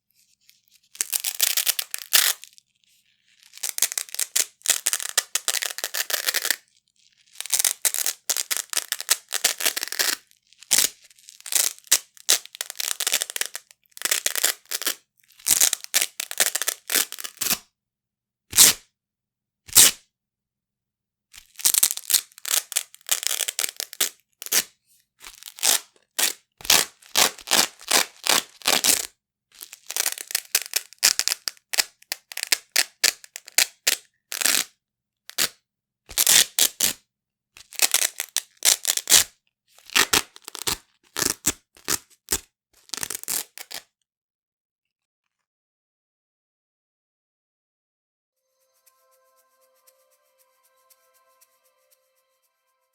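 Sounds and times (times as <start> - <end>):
velcro ripping apart: 0.9 - 2.6, 3.4 - 6.7, 7.3 - 17.6, 18.5 - 18.8, 19.7 - 20.0, 21.4 - 34.7, 35.3 - 37.0, 37.6 - 43.9.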